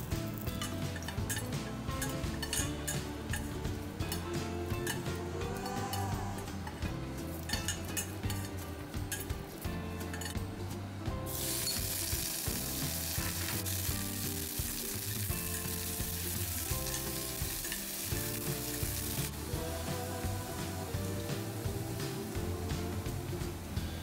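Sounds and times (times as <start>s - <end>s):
background music: 0.0s - 24.0s
chicken sizzling in a pan: 11.3s - 24.0s.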